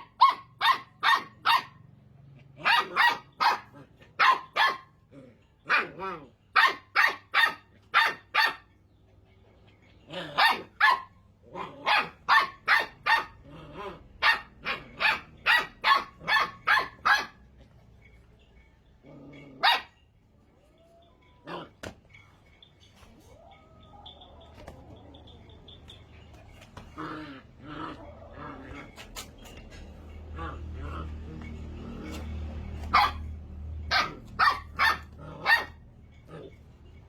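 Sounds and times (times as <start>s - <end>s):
puppy barking: 0.0s - 5.0s, 5.6s - 8.8s, 10.2s - 17.5s, 19.3s - 20.0s, 31.9s - 36.6s.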